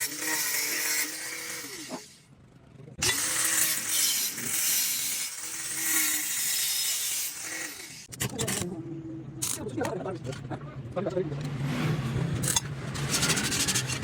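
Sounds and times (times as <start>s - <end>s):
electric power tool humming: 0.0s - 2.2s, 3.0s - 8.1s.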